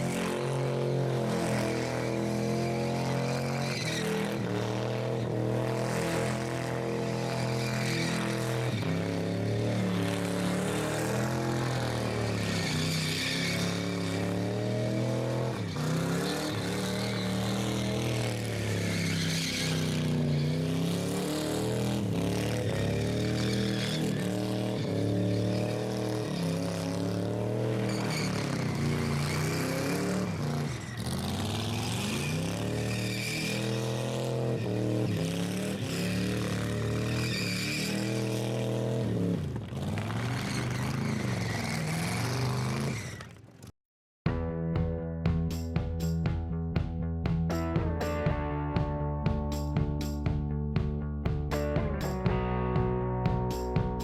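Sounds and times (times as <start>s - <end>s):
car engine revving hard: 0.0s - 43.0s.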